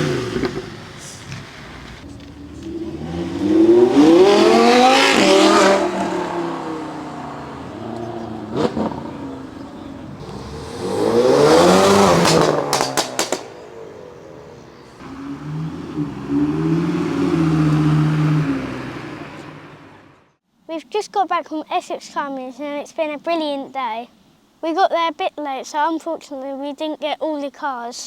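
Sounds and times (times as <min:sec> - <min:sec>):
sharp exhaust cracks: 0:00.0 - 0:20.2
cars accelerating hard: 0:00.0 - 0:20.4.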